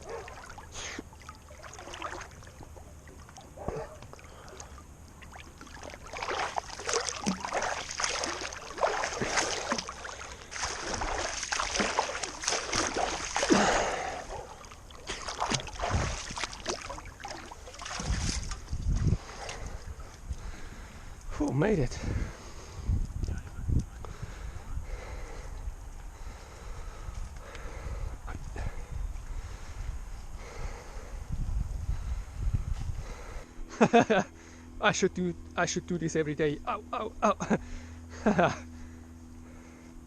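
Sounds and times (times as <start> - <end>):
water splashing from swimming: 0.0 - 20.1.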